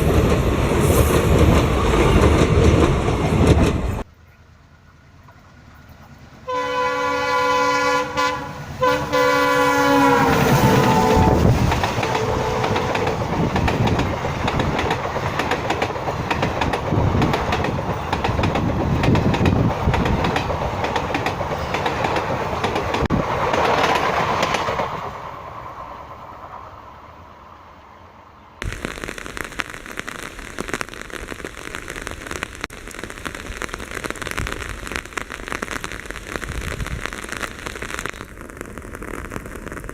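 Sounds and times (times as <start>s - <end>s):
train rumbling and clattering by: 0.0s - 6.6s, 9.6s - 28.1s
steady hiss like rain: 6.2s - 20.4s, 28.6s - 39.9s
locomotive horn blasts: 6.5s - 13.2s.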